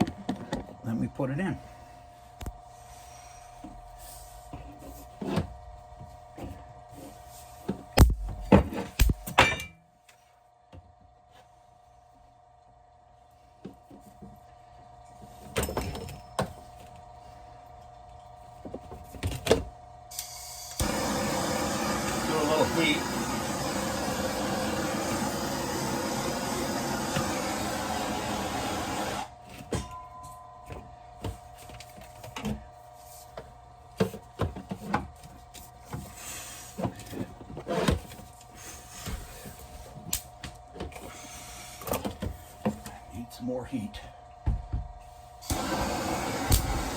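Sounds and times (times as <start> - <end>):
heat gun blowing: 20.1 - 29.4, 45.4 - 46.9.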